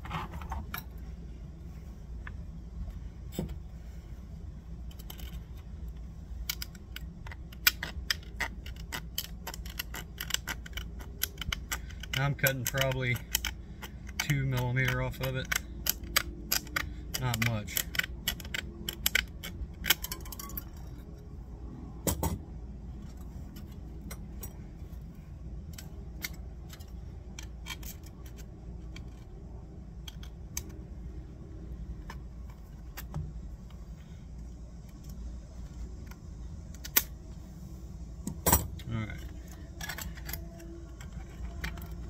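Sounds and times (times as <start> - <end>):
metal strip clicking and clinking: 6.4 - 21.0.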